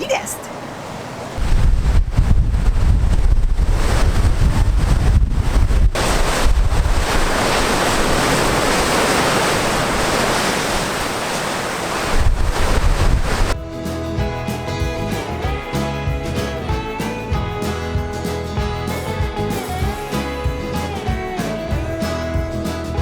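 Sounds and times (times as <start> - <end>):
ocean surf on a beach: 0.0 - 13.6
wind buffeting microphone: 1.3 - 13.7.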